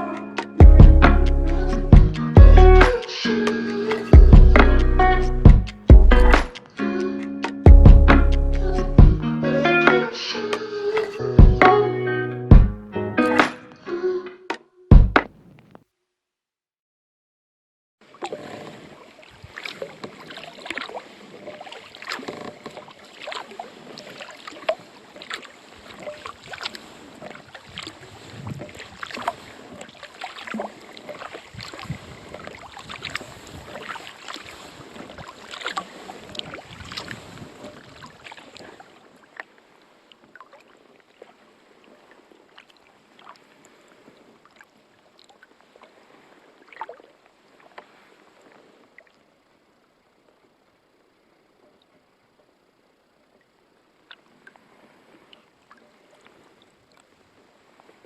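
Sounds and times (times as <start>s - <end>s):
paddle splashing in water: 0.0s - 6.8s, 18.0s - 49.3s, 54.0s - 58.0s.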